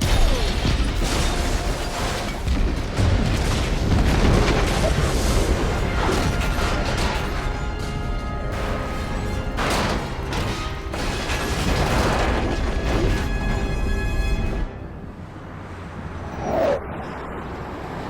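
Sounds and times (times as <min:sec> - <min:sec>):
explosion rumble with booms: 0:00.0 - 0:10.2
orchestral score: 0:04.7 - 0:16.0.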